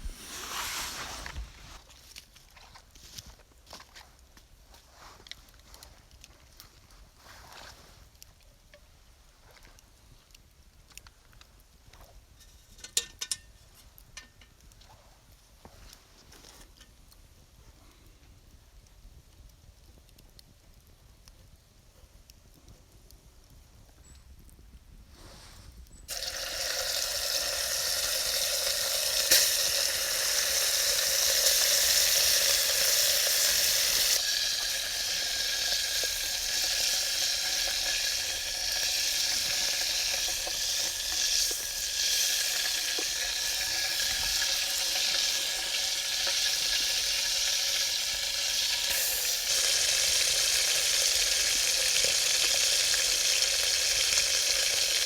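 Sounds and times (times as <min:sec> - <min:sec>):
food sizzling in a pot: 0:26.1 - 0:55.0.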